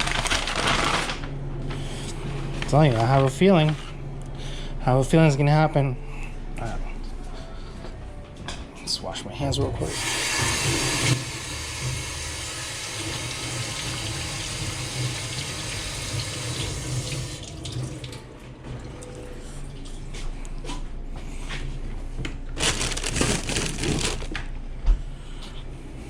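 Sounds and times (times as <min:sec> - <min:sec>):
tap water running into sink: 0:09.9 - 0:18.2.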